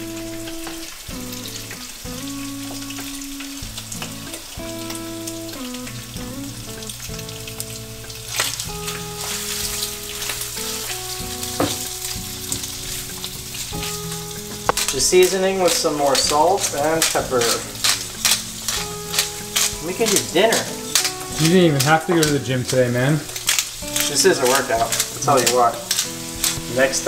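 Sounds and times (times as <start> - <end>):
background music: 0.0 - 27.0
seafood sizzling in a frying pan: 0.0 - 27.0
spoon stirring in a pan: 8.4 - 27.0
sharp clicks: 12.6 - 26.9.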